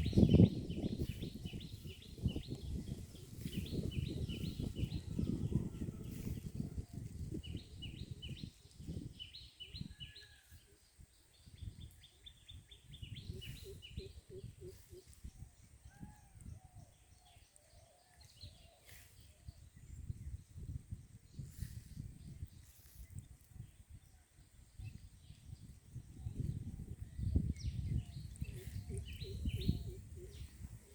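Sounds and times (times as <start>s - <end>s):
birds chirping: 26.2s - 30.9s.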